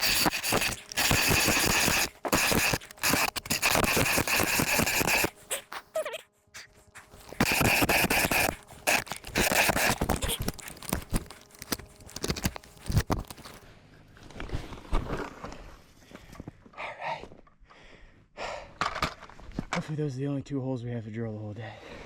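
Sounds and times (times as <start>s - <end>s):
scraping and crunching on ice: 0.0s - 5.7s, 6.6s - 13.6s.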